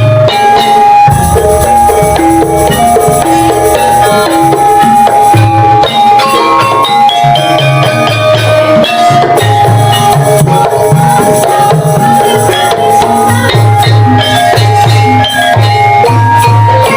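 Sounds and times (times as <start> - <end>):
hand drum strokes: 0.0 - 7.1
metallophone notes ringing: 0.0 - 16.9.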